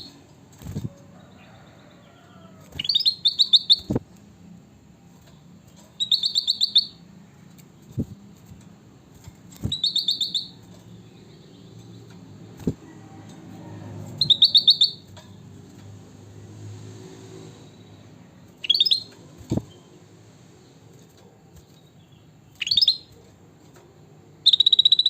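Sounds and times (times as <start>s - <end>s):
bird quick repeated chirps: 2.7s - 4.0s, 5.8s - 7.0s, 9.2s - 10.9s, 14.2s - 15.1s, 18.5s - 19.9s, 22.5s - 23.2s, 24.4s - 25.0s.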